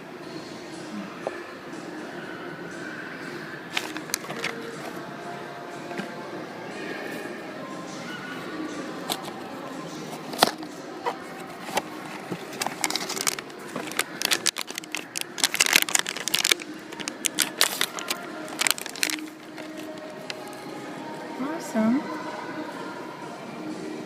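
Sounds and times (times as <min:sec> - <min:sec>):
packaging clicks: 0:03.8 - 0:04.6, 0:11.6 - 0:20.6
packaging crinkling and crackling: 0:03.8 - 0:04.6, 0:11.6 - 0:20.6.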